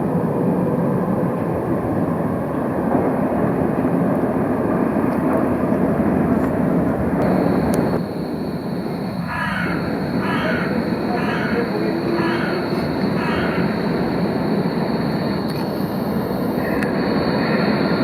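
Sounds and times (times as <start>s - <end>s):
tram rolling rumble: 0.0s - 18.0s
thin high whine: 7.2s - 18.0s.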